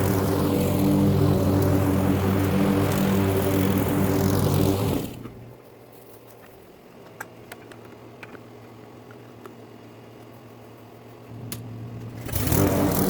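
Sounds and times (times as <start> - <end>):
lawn mower engine running: 0.0 - 5.5, 11.4 - 13.0.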